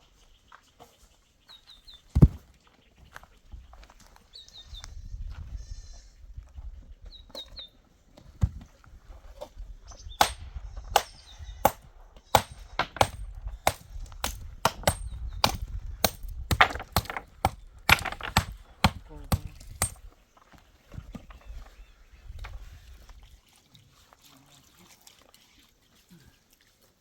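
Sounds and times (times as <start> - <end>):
sharp knocks: 12.4 - 20.0.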